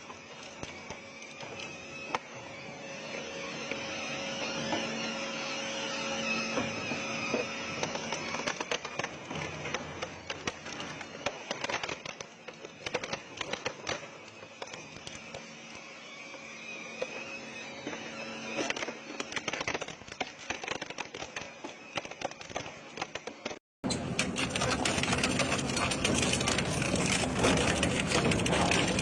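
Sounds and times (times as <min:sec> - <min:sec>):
shredder motor hum and whine: 0:00.0 - 0:29.0
material cracking and crunching: 0:07.2 - 0:15.5, 0:18.5 - 0:29.0.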